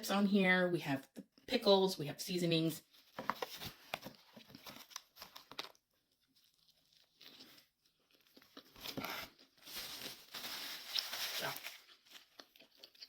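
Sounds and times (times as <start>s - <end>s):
paper wrapper crinkling: 2.9s - 13.0s.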